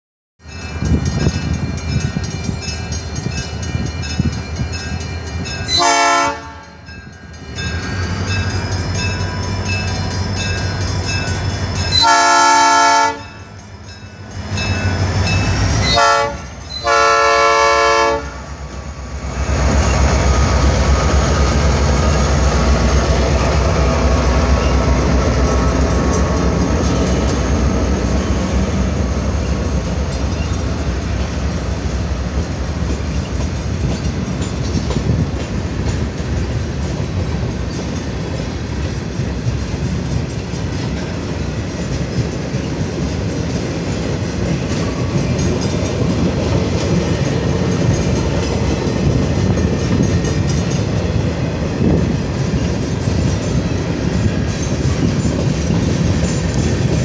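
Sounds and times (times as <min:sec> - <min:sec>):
crossing warning bell ringing: 0:00.4 - 0:57.0
train rumbling with clattering wheels: 0:00.4 - 0:57.0
locomotive air horn blasts: 0:05.7 - 0:06.8, 0:11.9 - 0:13.4, 0:15.8 - 0:18.4.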